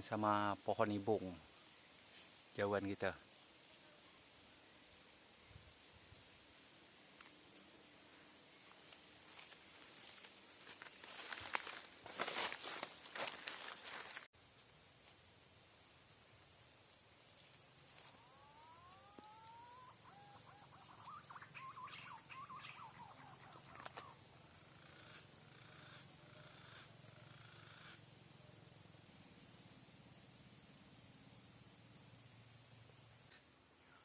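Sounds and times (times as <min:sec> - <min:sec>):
insects droning: 0:00.0 - 0:34.0
pulsing insect chirp: 0:00.0 - 0:34.0
bird whistling and warbling: 0:18.7 - 0:24.1.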